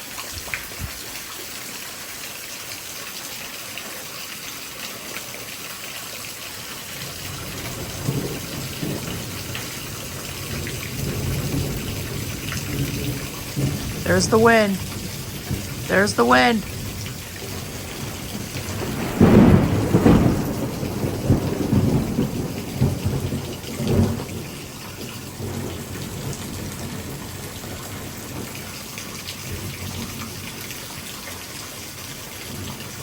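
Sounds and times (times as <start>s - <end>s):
heavy rain falling: 0.0s - 33.0s
rolling thunder rumble: 7.0s - 14.1s, 14.8s - 15.9s, 16.6s - 28.8s.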